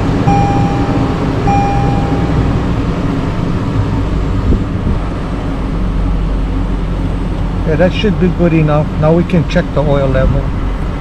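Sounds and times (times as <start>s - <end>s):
car engine idling: 0.0s - 9.8s
electronic chime beeps: 0.3s - 2.6s.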